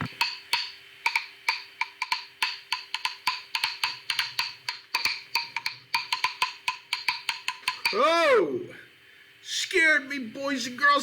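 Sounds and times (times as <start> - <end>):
wood block clicks: 0.0 - 8.0.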